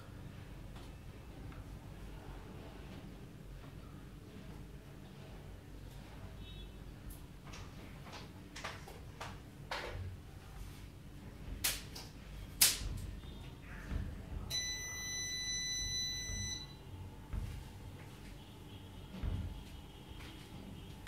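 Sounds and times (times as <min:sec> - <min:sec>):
electronic buzzer beep: 0:14.5 - 0:16.8.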